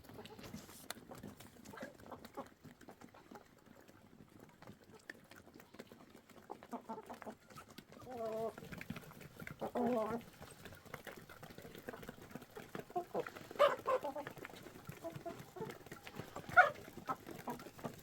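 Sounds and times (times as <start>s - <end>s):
poultry calling: 9.5s - 18.0s.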